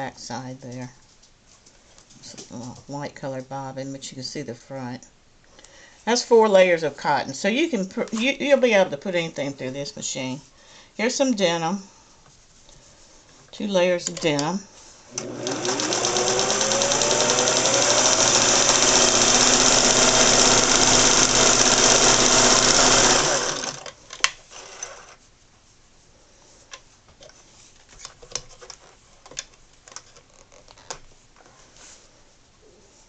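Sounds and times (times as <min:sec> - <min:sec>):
sewing machine stitching: 0:15.1 - 0:23.9, 0:24.5 - 0:25.2.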